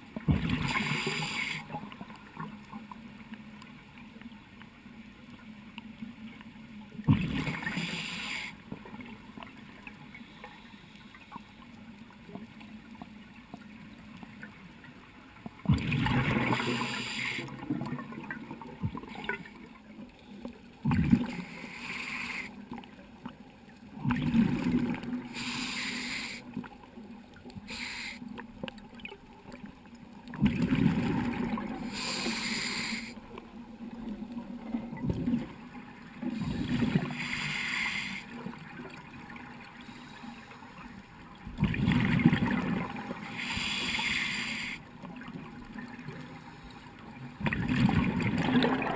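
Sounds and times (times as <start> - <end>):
diver exhaling bubbles underwater: 47.4 - 48.9.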